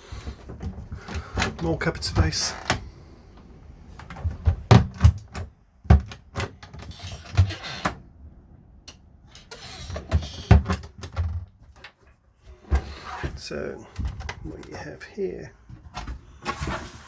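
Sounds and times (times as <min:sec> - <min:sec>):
cupboard doors opening and shutting: 0:00.0 - 0:08.1, 0:08.9 - 0:14.8, 0:15.6 - 0:17.0.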